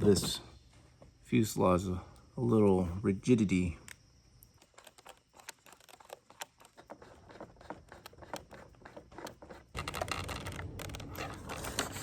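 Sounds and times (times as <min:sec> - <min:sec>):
small clicks and scratches: 0:03.9 - 0:12.0.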